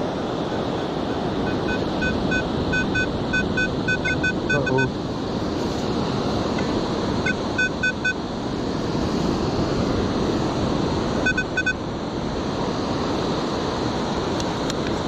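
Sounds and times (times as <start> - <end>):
metal detector beeping: 1.4 - 4.9, 7.2 - 8.2, 11.2 - 11.8.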